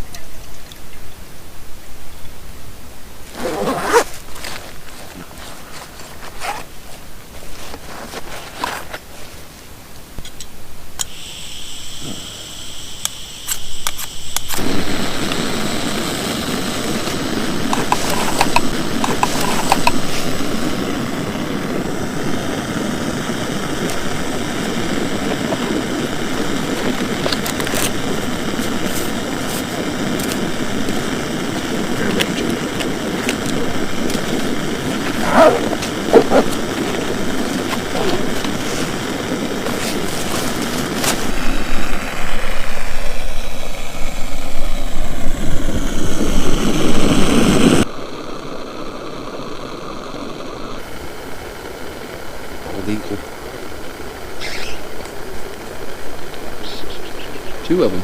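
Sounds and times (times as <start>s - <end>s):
gas hissing: 2.8s - 58.0s
gas burner roaring: 11.0s - 58.0s
igniter clicks: 16.6s - 20.1s.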